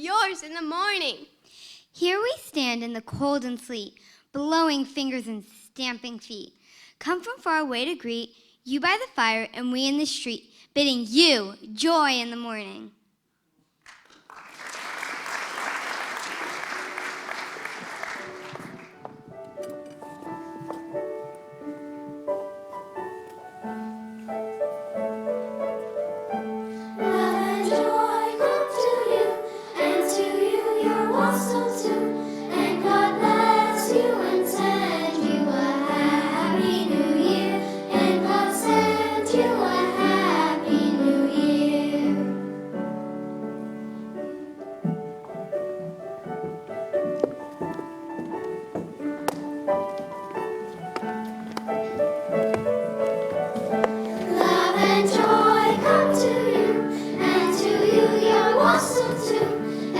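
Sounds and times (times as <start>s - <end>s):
children's choir singing: 15.2s - 44.9s, 51.0s - 59.9s
instrumental accompaniment: 16.5s - 59.9s.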